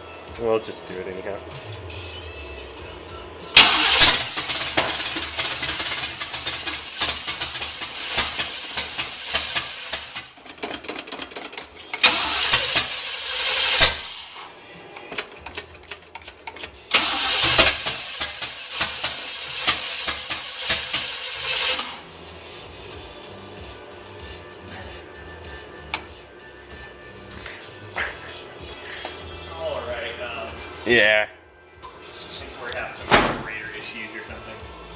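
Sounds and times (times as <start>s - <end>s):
car engine cranking and sputtering: 3.6s - 14.4s, 15.0s - 22.0s.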